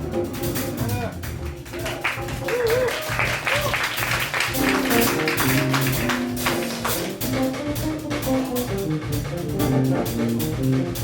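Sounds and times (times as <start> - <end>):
drum and hand percussion: 0.0 - 11.0
latin jazz band playing: 0.0 - 11.0.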